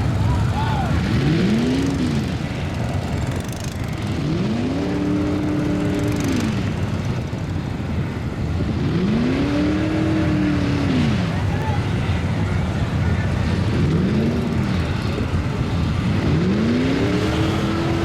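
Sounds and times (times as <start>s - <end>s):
mud truck engine revving: 0.0s - 6.8s, 16.1s - 18.0s
low engine rumble: 0.0s - 9.1s.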